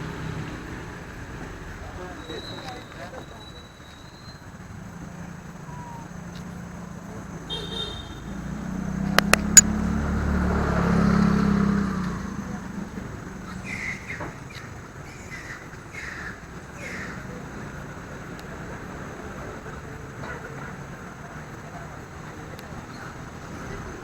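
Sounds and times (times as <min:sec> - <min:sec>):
vehicle engine hum passing: 0:00.0 - 0:03.3, 0:04.2 - 0:24.0
sharp clicks: 0:09.0 - 0:09.7.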